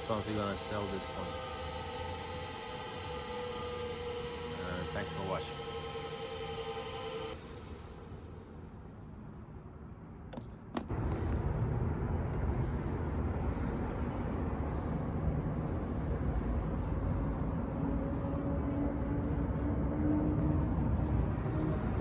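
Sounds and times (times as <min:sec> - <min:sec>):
bench grinder motor running: 0:00.0 - 0:08.5.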